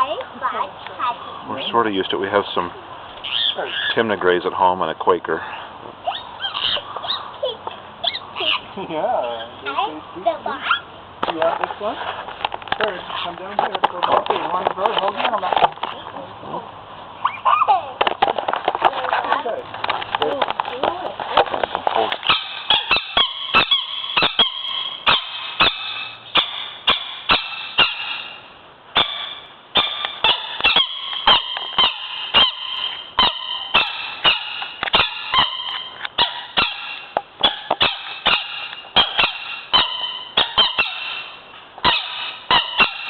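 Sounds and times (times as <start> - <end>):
parrots screeching: 3.2 - 4.2, 5.4 - 7.4, 8.0 - 9.8, 10.5 - 10.9, 17.2 - 17.8, 22.2 - 43.0.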